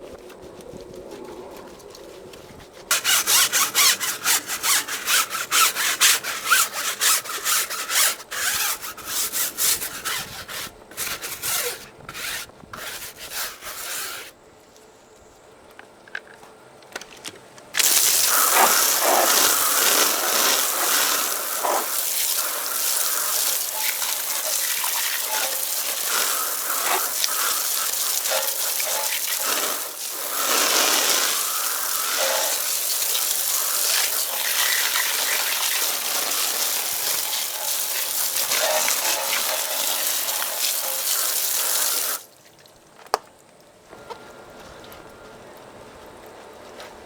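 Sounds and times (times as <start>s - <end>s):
brush scrubbing car wheel: 0.0s - 14.3s, 17.8s - 42.3s
hose spraying water: 2.8s - 14.3s, 17.8s - 42.4s.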